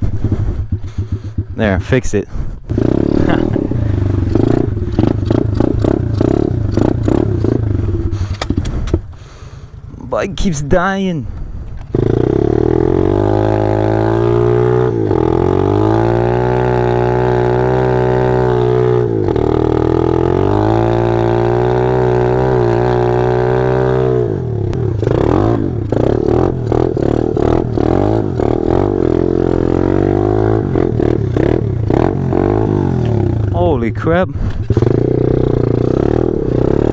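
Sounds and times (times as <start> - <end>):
small motorbike engine revving high: 2.7 - 8.3, 12.0 - 33.6, 34.7 - 36.9.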